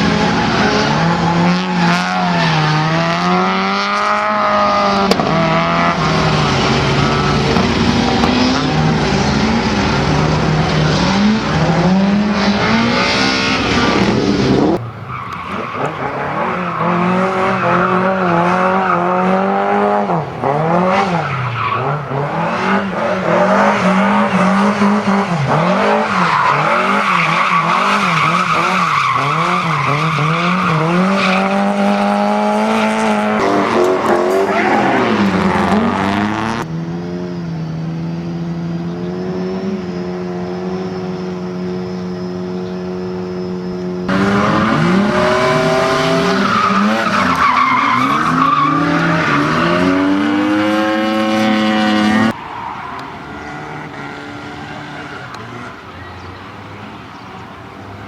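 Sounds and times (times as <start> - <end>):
car engine revving: 0.0 - 56.8
tyres squealing: 20.1 - 36.4, 44.1 - 57.2.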